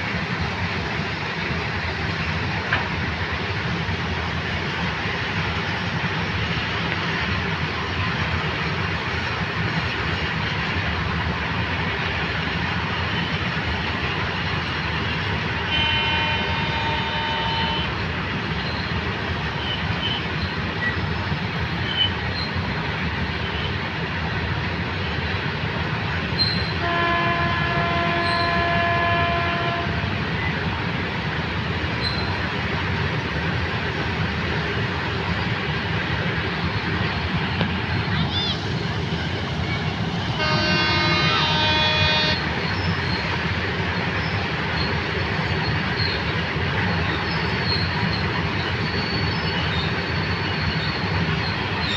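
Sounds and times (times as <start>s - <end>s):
train rushing past: 0.0s - 51.9s
train horn: 15.6s - 18.0s, 26.5s - 30.1s, 40.3s - 42.6s.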